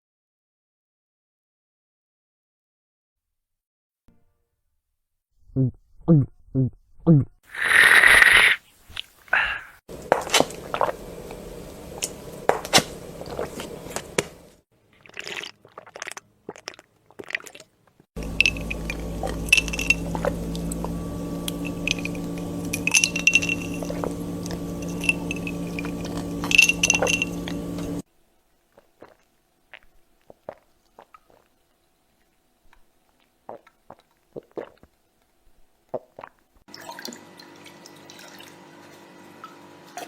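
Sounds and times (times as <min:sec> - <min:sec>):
wet liquid sounds: 0:07.6 - 0:11.1, 0:12.0 - 0:28.0, 0:28.6 - 0:38.6
glass clinking: 0:18.2 - 0:20.4, 0:21.5 - 0:27.6
steady hum: 0:18.2 - 0:28.0.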